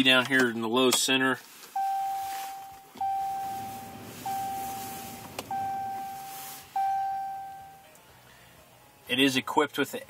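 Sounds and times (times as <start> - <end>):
vehicle warning chime dinging: 1.8 - 8.0.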